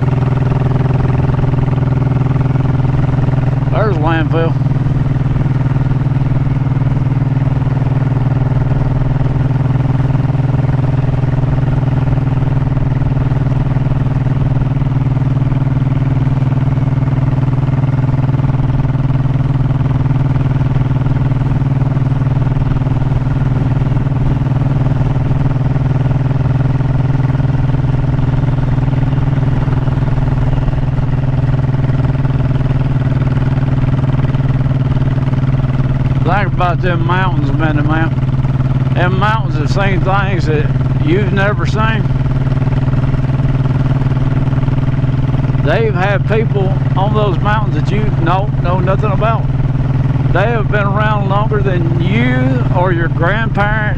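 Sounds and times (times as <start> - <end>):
motorcycle engine cruising: 0.0 - 53.9.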